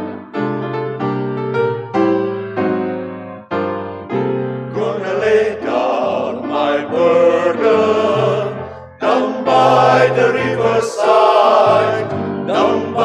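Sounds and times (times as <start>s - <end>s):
gospel piano chords: 0.0s - 13.0s
choir singing: 4.7s - 13.0s.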